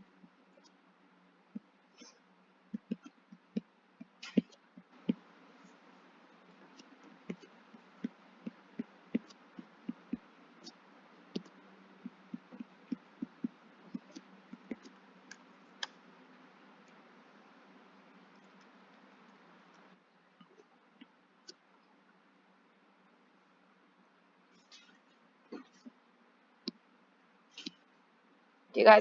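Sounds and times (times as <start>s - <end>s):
faint steady hum: 0.0s - 29.0s
light sharp taps and clicks: 2.7s - 5.3s.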